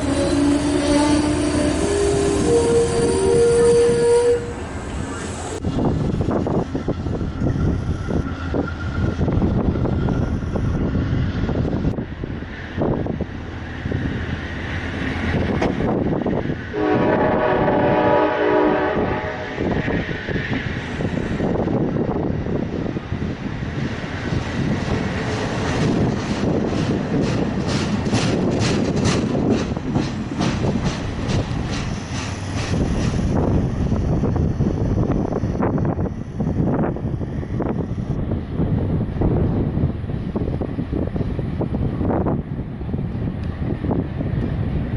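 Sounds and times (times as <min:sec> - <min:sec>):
train horn chord: 0:00.0 - 0:04.6, 0:16.7 - 0:19.7
train wheels clicking on rail joints: 0:00.0 - 0:16.7, 0:19.6 - 0:38.9
wind buffeting microphone: 0:00.0 - 0:44.9.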